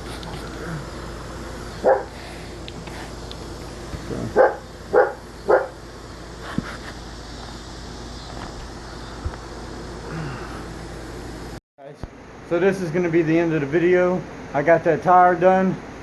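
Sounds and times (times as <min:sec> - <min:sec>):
dog barking: 0:01.8 - 0:02.2, 0:04.4 - 0:05.8.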